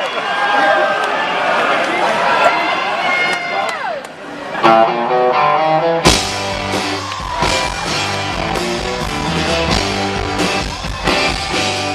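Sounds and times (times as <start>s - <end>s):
live rock band playing: 4.6s - 11.9s
picked electric guitar notes: 4.6s - 11.9s.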